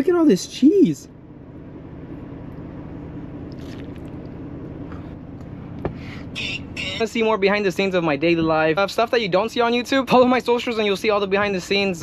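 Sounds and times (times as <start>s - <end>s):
low rumble in truck cab: 0.0s - 12.0s
person chewing food: 3.5s - 5.1s.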